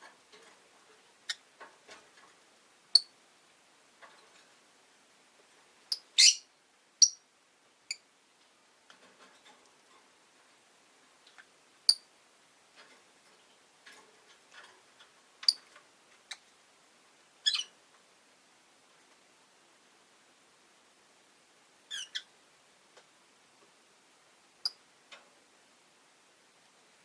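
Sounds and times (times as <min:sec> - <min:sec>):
lovebirds chirping: 0:05.9 - 0:07.2, 0:17.4 - 0:17.8, 0:21.9 - 0:22.3.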